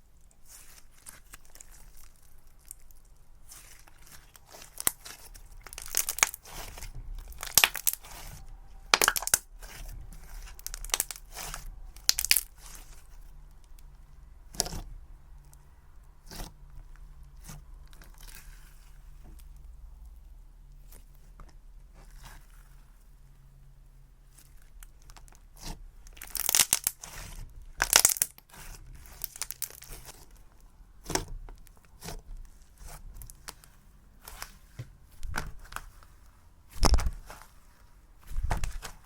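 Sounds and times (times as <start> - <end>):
slime crackling and tearing: 0.4 - 14.9, 17.4 - 18.9, 24.3 - 39.0.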